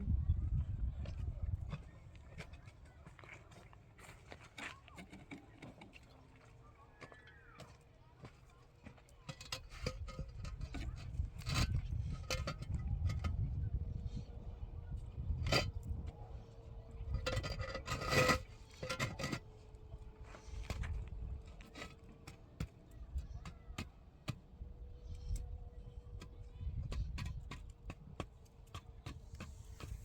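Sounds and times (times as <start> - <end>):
tools knocking clicking and scraping: 8.9 - 13.4, 17.1 - 19.5, 26.2 - 30.0.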